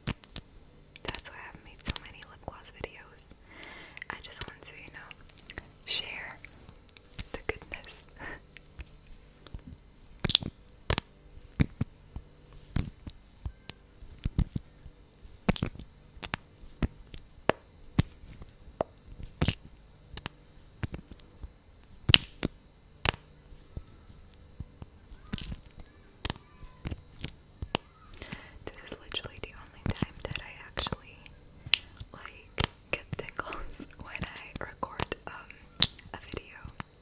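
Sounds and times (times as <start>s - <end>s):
wet lip smacks and clicks: 15.4s - 17.3s, 18.4s - 21.0s, 34.0s - 36.1s.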